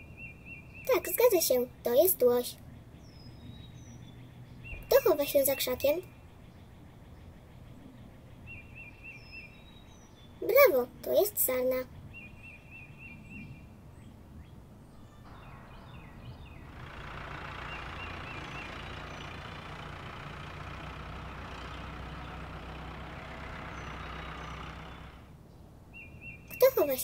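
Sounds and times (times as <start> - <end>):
car engine running: 15.3 - 25.4.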